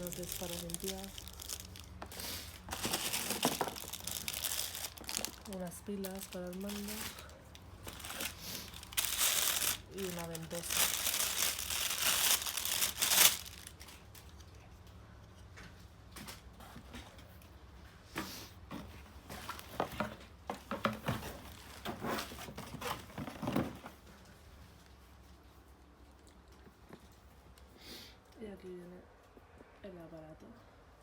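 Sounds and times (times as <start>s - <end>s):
packaging crinkling: 0.0s - 14.4s.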